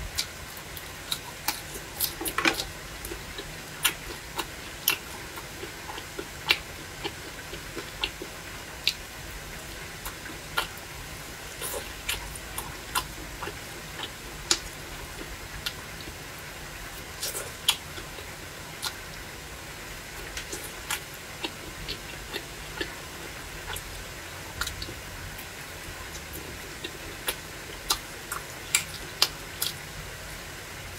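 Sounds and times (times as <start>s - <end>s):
steady low hum: 0.0s - 30.9s
crunchy chewing: 0.1s - 9.0s, 9.6s - 10.8s, 11.5s - 15.8s, 20.2s - 24.0s, 24.6s - 29.8s.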